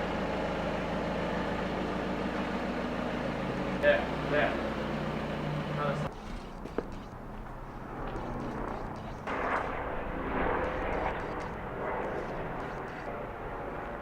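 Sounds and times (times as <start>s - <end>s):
vehicle engine and road noise: 0.0s - 14.0s.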